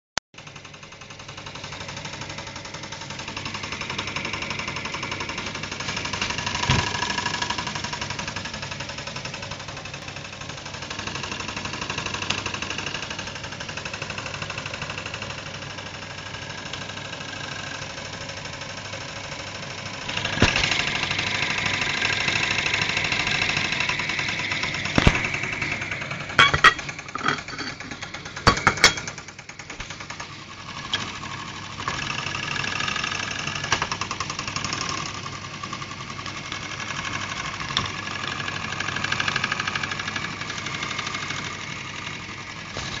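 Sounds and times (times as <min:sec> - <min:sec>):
sharp clicks or knocks: 0:24.6 - 0:25.5.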